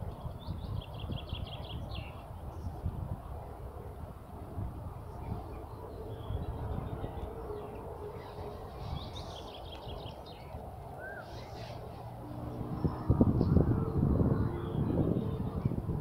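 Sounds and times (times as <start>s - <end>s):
low outdoor rumble: 0.0s - 16.0s
songbirds chirping: 0.0s - 16.0s.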